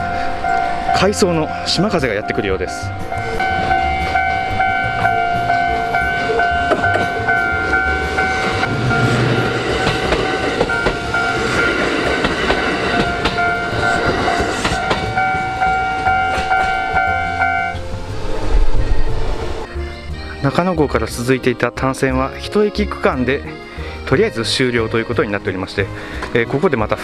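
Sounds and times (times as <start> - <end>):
level-crossing alarm ringing: 0.0 - 18.4
train rushing past: 0.0 - 19.8
wheels clicking over rail joints: 3.4 - 8.7, 9.3 - 17.6.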